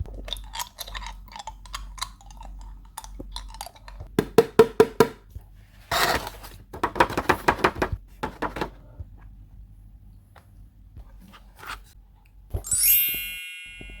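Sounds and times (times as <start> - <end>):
bright chime: 12.6 - 14.0.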